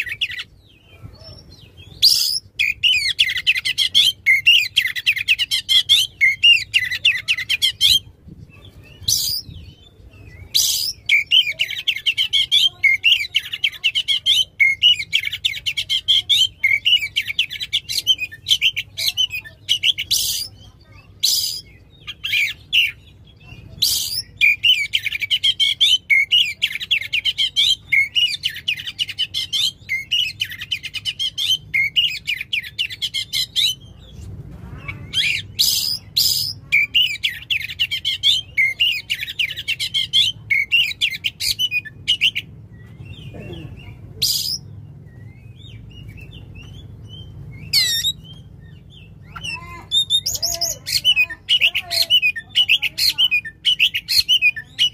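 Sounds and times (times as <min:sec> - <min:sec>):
bird singing and whistling: 0:00.0 - 0:20.6, 0:34.9 - 0:54.9.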